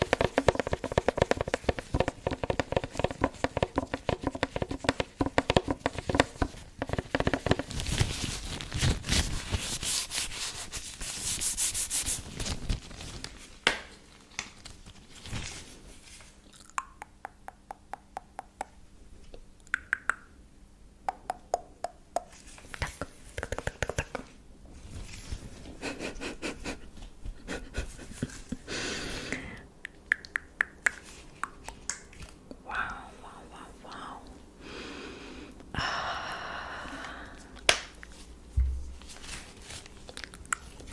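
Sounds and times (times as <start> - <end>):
hands rubbing together: 0.0 - 8.1, 9.1 - 12.3
finger clicks: 19.6 - 20.3.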